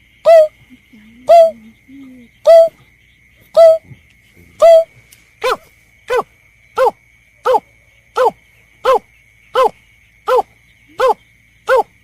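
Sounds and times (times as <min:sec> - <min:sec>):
falling hoot-like lure call: 0:01.3 - 0:01.6, 0:02.5 - 0:02.8, 0:03.6 - 0:03.8, 0:04.6 - 0:04.9.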